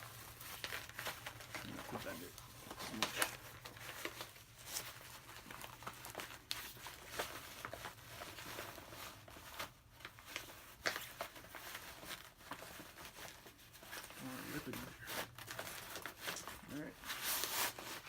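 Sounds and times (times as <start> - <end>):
armour panel crinkling and rustling: 0.0 - 18.0.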